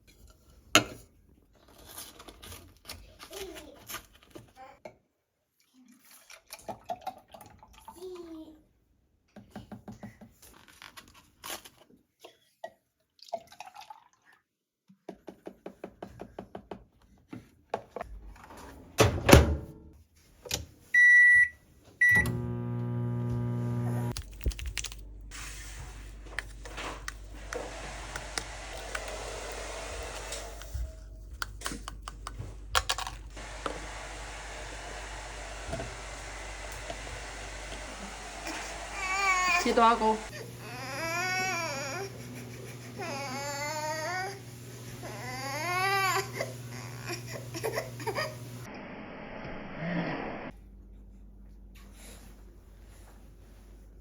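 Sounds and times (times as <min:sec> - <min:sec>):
kitchen appliance beeps: 0:21.0 - 0:24.1
kitchen appliance humming and whirring: 0:22.0 - 0:50.5.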